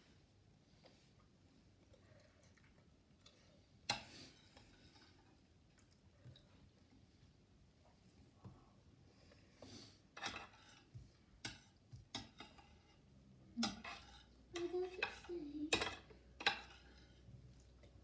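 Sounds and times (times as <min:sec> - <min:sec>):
cutlery clinking against dishes: 0:10.2 - 0:12.8, 0:13.6 - 0:17.0.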